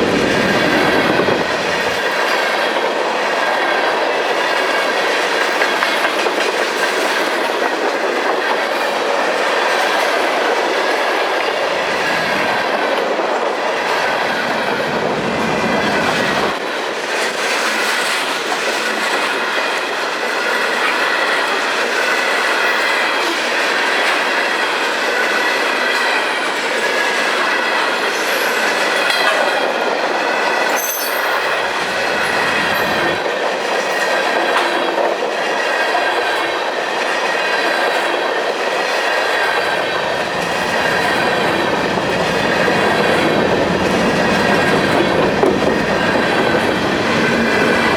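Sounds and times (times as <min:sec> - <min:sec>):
deep train rumble: 0:00.0 - 0:18.2, 0:26.4 - 0:34.9, 0:37.5 - 0:47.9
train wheels clicking over rail joints: 0:00.0 - 0:47.9
steel wheels squealing on rail: 0:13.6 - 0:47.9.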